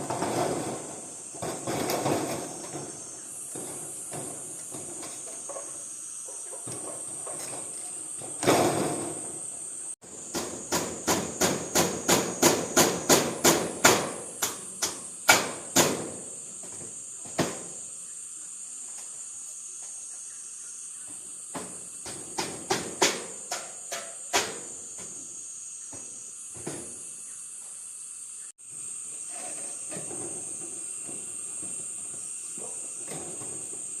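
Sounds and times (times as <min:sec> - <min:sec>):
crickets chirring: 0:00.0 - 0:34.0.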